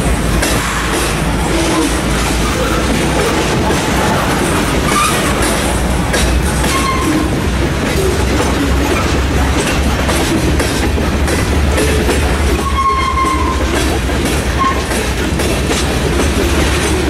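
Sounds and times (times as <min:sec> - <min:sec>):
freight train rumbling: 0:00.0 - 0:17.0
wheels clacking over rail joints: 0:00.0 - 0:17.0.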